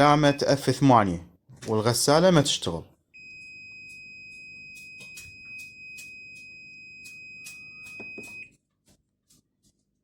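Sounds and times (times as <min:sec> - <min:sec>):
washing machine alarm beeping: 0:00.0 - 0:00.7, 0:03.1 - 0:08.6.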